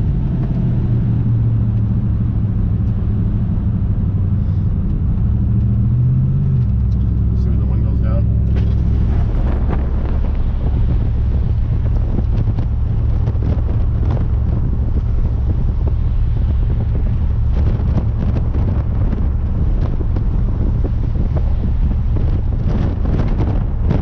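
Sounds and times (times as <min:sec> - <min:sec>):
road noise: 0:00.0 - 0:24.0
truck engine and exhaust droning: 0:00.0 - 0:24.0
wind noise: 0:00.0 - 0:24.0.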